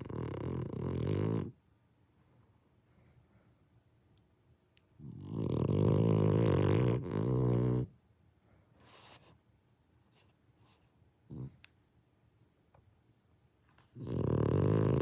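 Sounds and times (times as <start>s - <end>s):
dog snoring: 0.0s - 1.6s, 5.0s - 8.0s, 11.3s - 11.6s, 14.0s - 15.0s.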